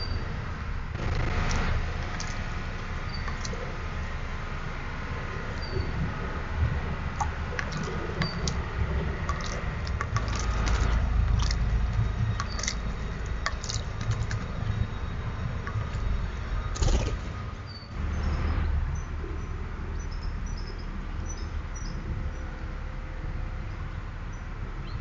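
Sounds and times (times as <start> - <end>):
low rumble: 0.0 - 20.0
water splashing in birdbath: 1.3 - 4.2, 5.4 - 17.2.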